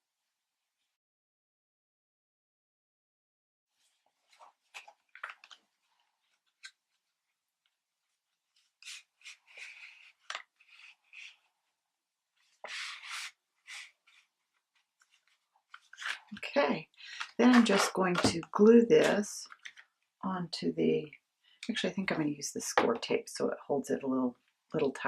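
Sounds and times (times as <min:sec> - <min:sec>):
paper rustling and rubbing: 0:03.8 - 0:11.8, 0:12.4 - 0:18.3.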